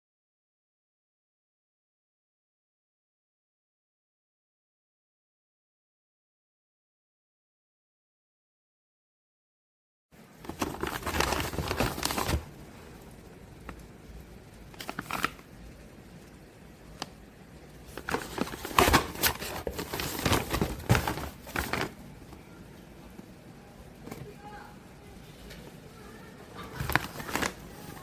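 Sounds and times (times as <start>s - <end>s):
material crinkling and rustling: 10.4s - 12.8s, 14.7s - 15.5s, 17.8s - 22.0s, 26.6s - 28.0s.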